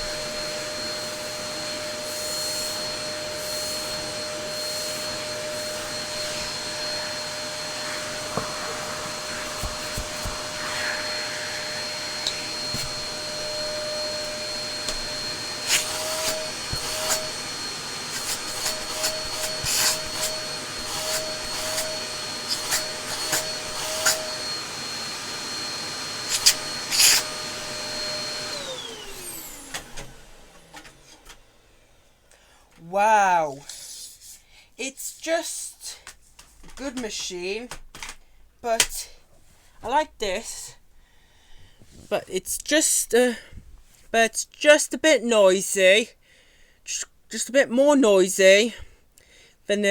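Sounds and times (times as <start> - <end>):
vacuum cleaner whining: 0.0 - 33.6.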